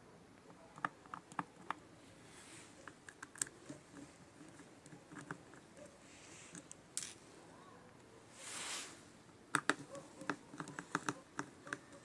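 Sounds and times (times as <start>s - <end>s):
small clicks and taps: 0.4s - 1.8s, 9.5s - 11.9s
soft scraping: 2.0s - 9.2s.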